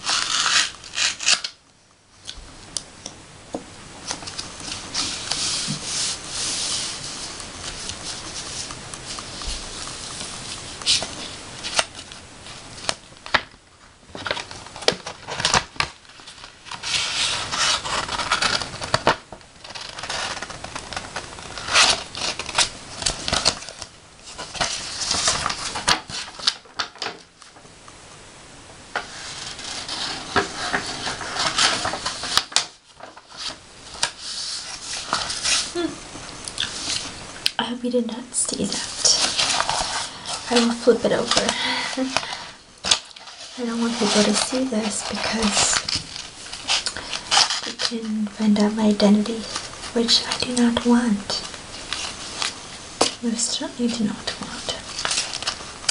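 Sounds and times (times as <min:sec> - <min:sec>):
letter opener scraping paper: 0:00.0 - 0:01.6.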